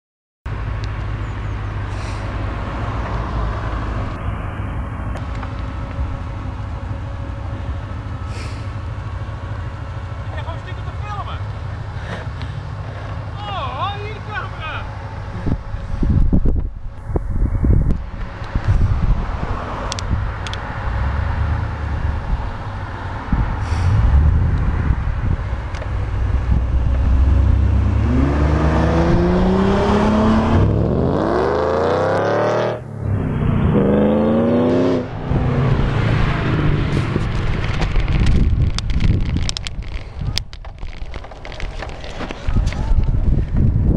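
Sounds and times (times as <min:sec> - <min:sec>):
car engines rumbling past: 0:00.5 - 0:43.9
wind buffeting microphone: 0:15.1 - 0:31.3, 0:33.0 - 0:43.9
car engine accelerating hard: 0:17.0 - 0:39.6.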